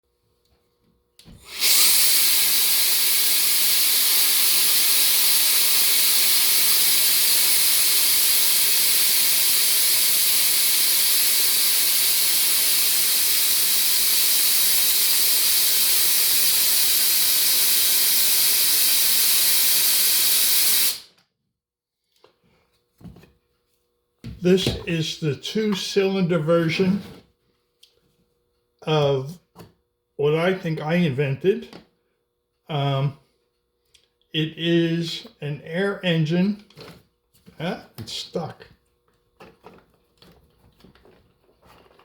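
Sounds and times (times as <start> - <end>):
air duster hissing: 1.2 - 21.1.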